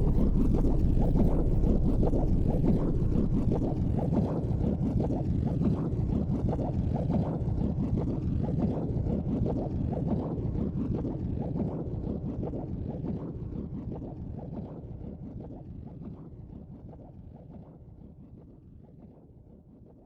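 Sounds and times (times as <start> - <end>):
wood fire rumbling: 0.0 - 4.1.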